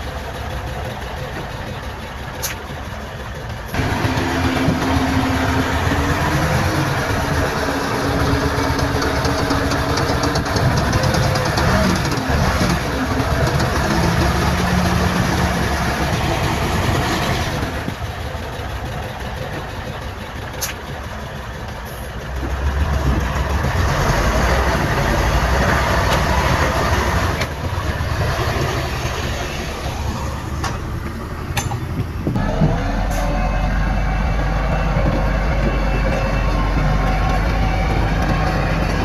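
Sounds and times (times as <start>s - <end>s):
heavy diesel engines running: 0.0s - 39.0s.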